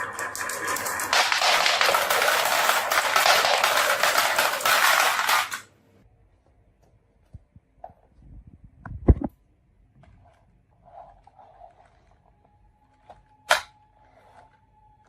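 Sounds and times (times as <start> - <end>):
marbles rattling down a marble run: 0.0 - 5.7.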